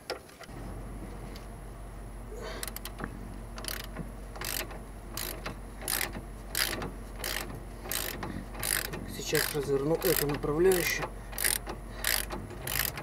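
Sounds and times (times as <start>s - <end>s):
steady low hum: 0.4s - 13.0s
ratchet wrench clicking: 3.6s - 13.0s.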